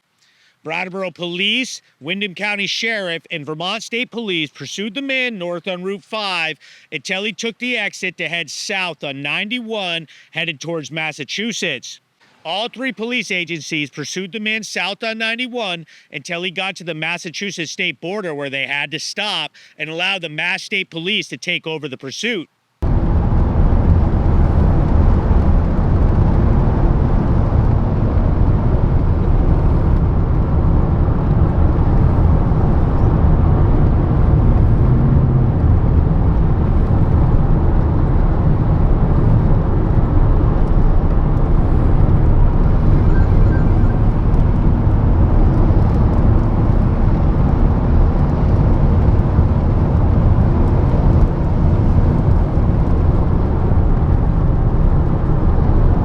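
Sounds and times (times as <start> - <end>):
vehicle driving low rumble: 22.8 - 56.0.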